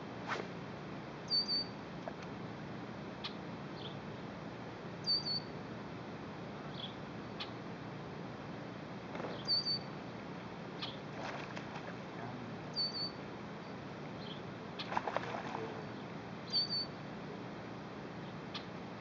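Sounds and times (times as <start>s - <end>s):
steady background hiss: 0.0s - 19.0s
bird chirping: 1.3s - 1.8s, 3.2s - 4.0s, 5.0s - 5.5s, 6.7s - 7.6s, 9.2s - 9.9s, 10.8s - 11.0s, 12.7s - 15.0s, 16.0s - 17.0s.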